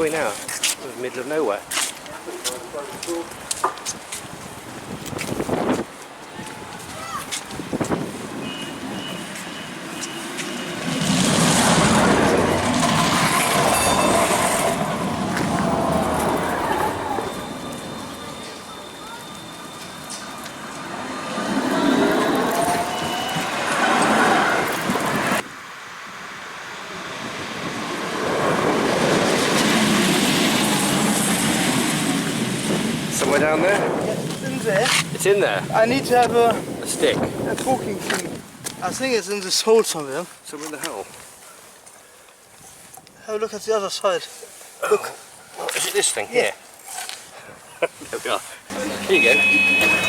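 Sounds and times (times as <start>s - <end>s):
tram rumbling on rails: 7.0s - 25.4s, 26.8s - 37.5s, 48.7s - 50.0s
heavy vehicle passing: 8.7s - 35.9s
short high beeps: 48.7s - 50.0s.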